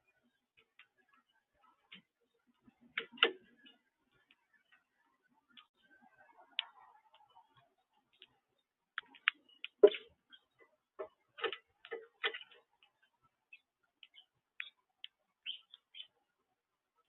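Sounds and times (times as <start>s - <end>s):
birds pecking on a feeder: 9.0s - 16.2s.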